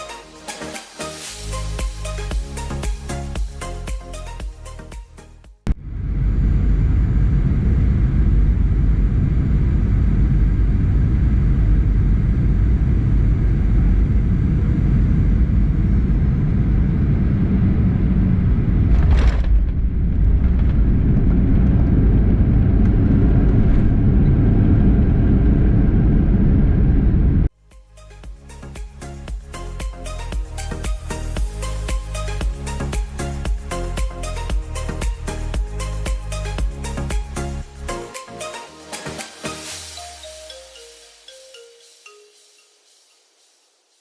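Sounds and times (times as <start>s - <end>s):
jet engine high whine: 5.7s - 18.9s, 19.6s - 27.5s
jet engines and airflow rumble: 5.7s - 27.5s
wheels touching down jolt: 18.8s - 23.9s.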